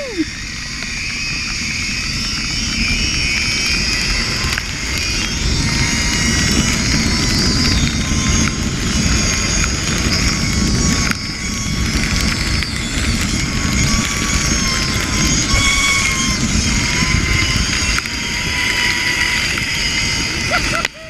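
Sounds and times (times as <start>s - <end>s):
wind rush on microphone: 0.0s - 21.0s
zipline pulleys whining on cable: 0.0s - 21.0s.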